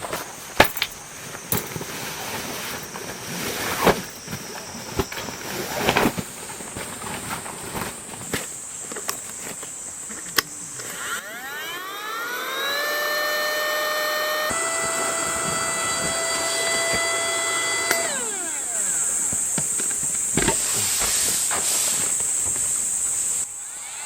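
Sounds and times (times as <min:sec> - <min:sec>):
electric air pump whining: 0:00.0 - 0:24.0
airy hiss: 0:16.3 - 0:24.0.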